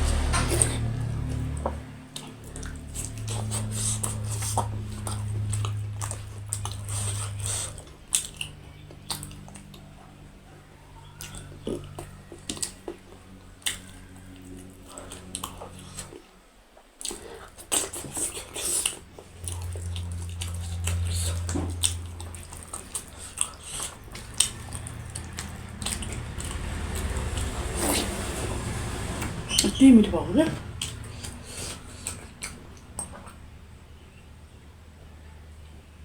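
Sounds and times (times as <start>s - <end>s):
chewing and biting: 0.0s - 29.8s, 30.5s - 33.5s
mouth clicks and smacks: 1.5s - 9.9s.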